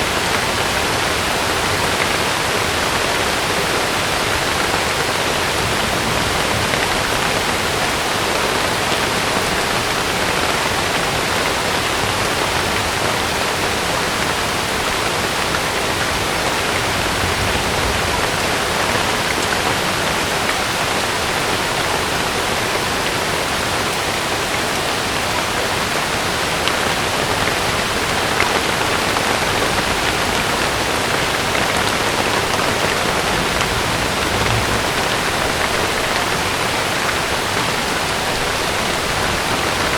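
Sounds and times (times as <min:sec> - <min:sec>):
heavy rain on a tent: 0:00.0 - 0:39.9.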